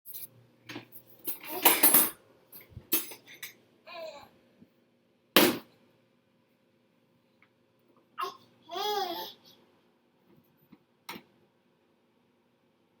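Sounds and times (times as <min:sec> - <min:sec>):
dishes and cutlery clattering: 0:00.7 - 0:03.6
toddler babbling: 0:03.9 - 0:04.3, 0:08.2 - 0:09.6.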